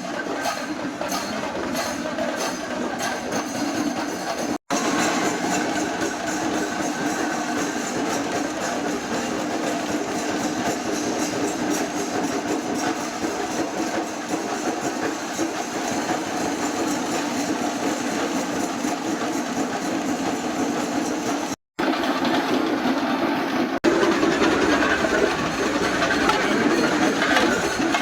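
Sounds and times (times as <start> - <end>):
cymbals: 4.7 - 11.6.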